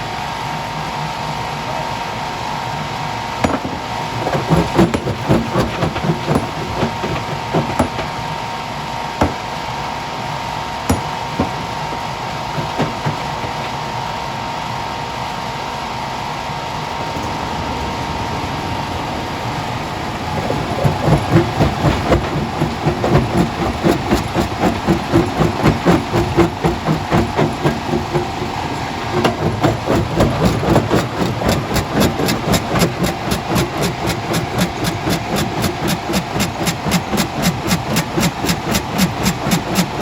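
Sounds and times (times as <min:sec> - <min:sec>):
heavy machinery hum: 0:03.2 - 0:09.6, 0:10.8 - 0:40.0
rhythmic pounding: 0:10.9 - 0:13.8, 0:17.1 - 0:40.0.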